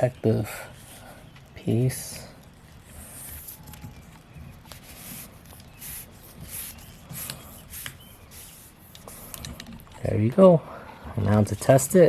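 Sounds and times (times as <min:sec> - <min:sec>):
plastic strip rustling scrapes: 0:04.6 - 0:09.4.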